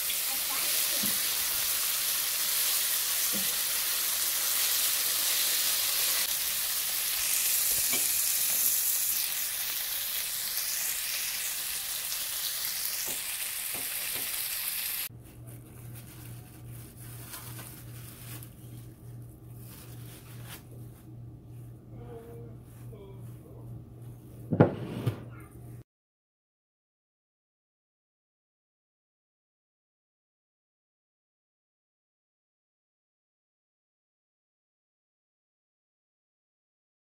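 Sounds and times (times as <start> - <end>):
chicken sizzling in frying pan: 0.0 - 15.1
spatula turning food: 7.1 - 24.5
low pulsing hum: 15.2 - 24.5.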